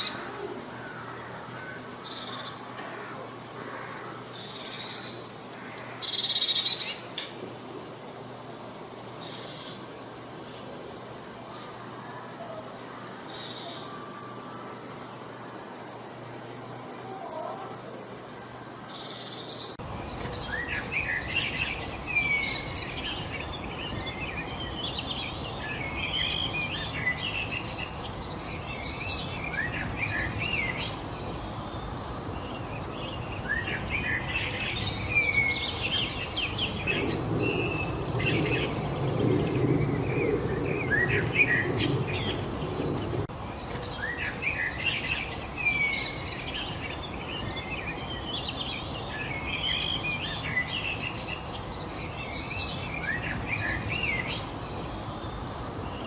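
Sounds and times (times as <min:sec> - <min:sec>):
steady background hiss: 0:00.0 - 0:56.0
wild birds singing and chirping: 0:00.0 - 0:56.0
low rumbling noise: 0:19.6 - 0:56.0.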